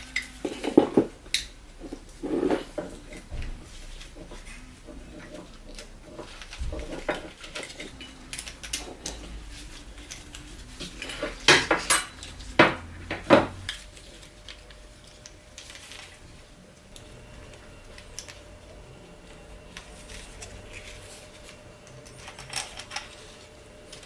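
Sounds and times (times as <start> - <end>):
metal tools clinking: 6.8 - 14.4, 15.0 - 16.3, 19.2 - 24.0.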